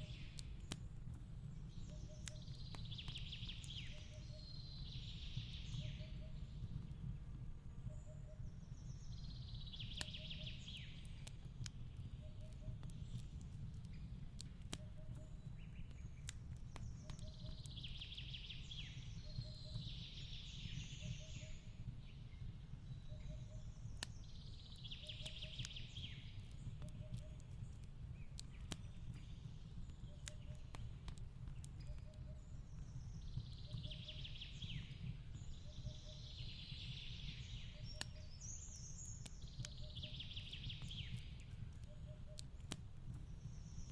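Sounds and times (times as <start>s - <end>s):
wood fire crackling: 0.0s - 43.9s
songbird twittering: 16.8s - 21.7s, 22.9s - 27.5s, 31.8s - 42.7s.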